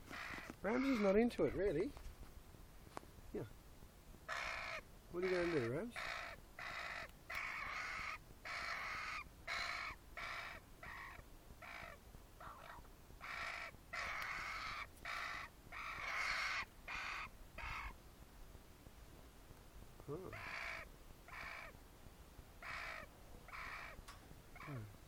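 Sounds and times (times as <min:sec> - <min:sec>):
fledgling bird squawking: 0:00.0 - 0:01.6, 0:04.3 - 0:18.0, 0:20.3 - 0:21.8, 0:22.6 - 0:25.0.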